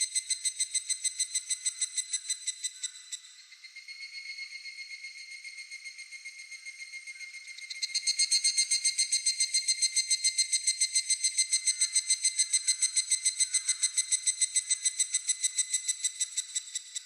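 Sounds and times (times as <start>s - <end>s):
faint insect trill: 0.0s - 17.0s.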